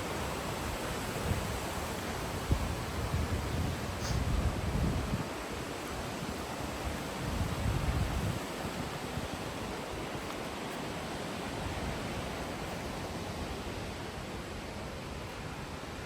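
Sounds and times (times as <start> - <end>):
stream water rushing: 0.0 - 16.0
wind buffeting microphone: 0.6 - 10.4.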